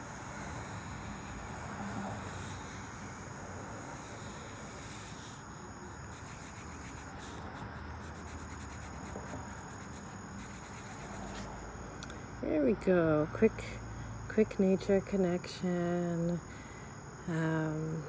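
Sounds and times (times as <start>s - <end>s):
pencil scratching on paper: 0.0s - 11.6s
faint high insect trill: 0.0s - 18.0s.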